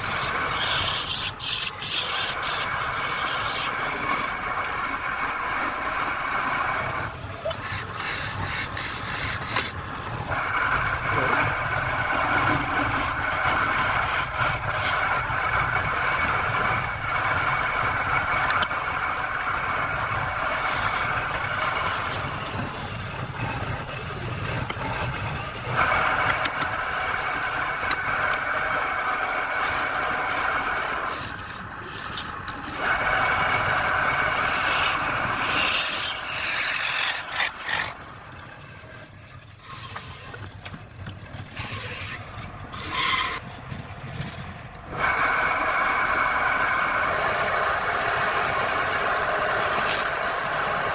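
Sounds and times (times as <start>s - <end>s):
turning tool scraping wood: 0.0s - 4.5s, 7.5s - 10.4s, 11.2s - 15.7s, 20.0s - 26.7s, 29.4s - 38.0s, 39.6s - 40.7s, 41.4s - 43.4s, 47.1s - 50.9s
wood lathe whine: 0.0s - 50.9s.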